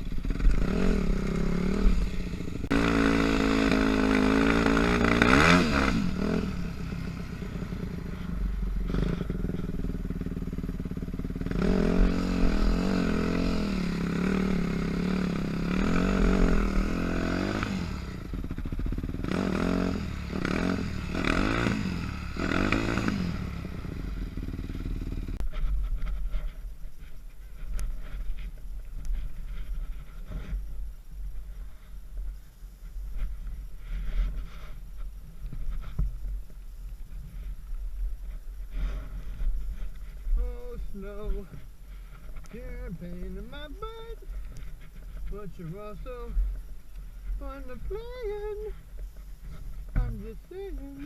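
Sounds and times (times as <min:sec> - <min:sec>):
dirt bike engine revving: 0:00.0 - 0:26.6, 0:42.2 - 0:51.0.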